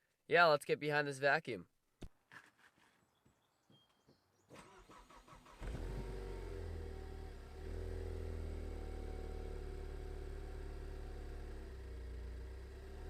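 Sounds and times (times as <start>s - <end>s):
car engine cranking: 4.5s - 13.0s
car engine idling: 5.2s - 13.0s.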